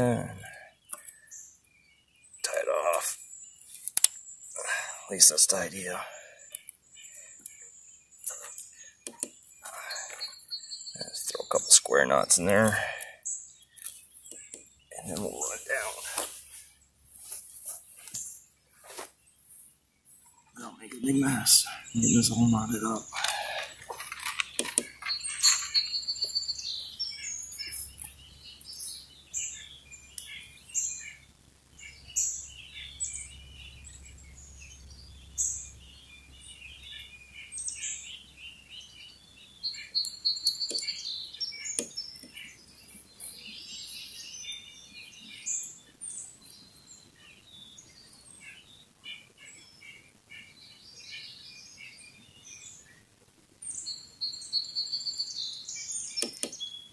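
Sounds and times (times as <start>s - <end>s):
birds chirping and singing: 0.0s - 56.9s
bird's rippling trill: 21.3s - 27.9s.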